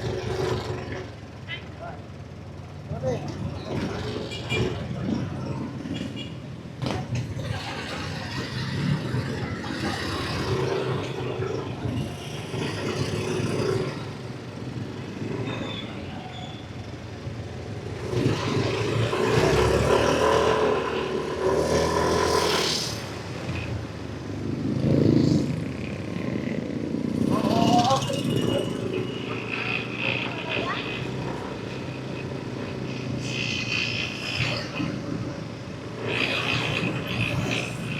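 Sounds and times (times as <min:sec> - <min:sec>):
wind and road noise: 0:00.0 - 0:37.9.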